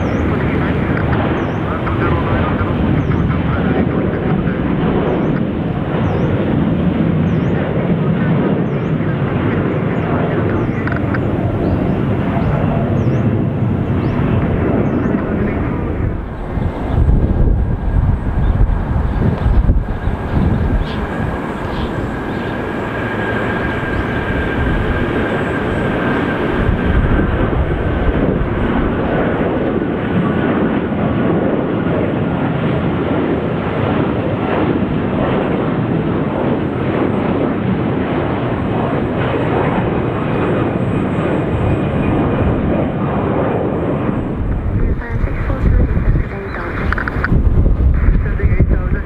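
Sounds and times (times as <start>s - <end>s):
high engine whine: 0.0s - 32.2s
jet engines running: 0.0s - 49.0s.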